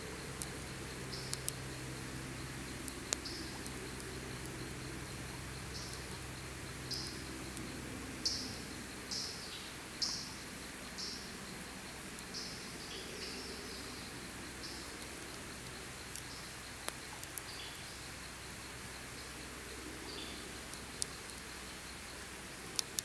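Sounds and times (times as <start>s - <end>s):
steady hiss: 0.0s - 23.0s
campfire crackling pops: 2.7s - 4.6s.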